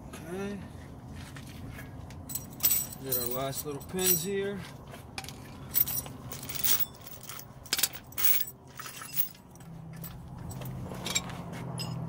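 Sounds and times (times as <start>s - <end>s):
metal tools clinking: 2.2s - 4.5s, 5.2s - 12.0s.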